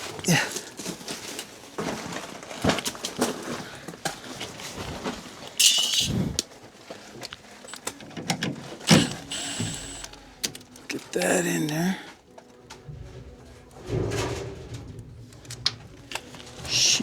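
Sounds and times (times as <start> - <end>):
hissing metal scrape: 5.6 - 6.4
sheet metal knocking and rattling: 12.6 - 17.0.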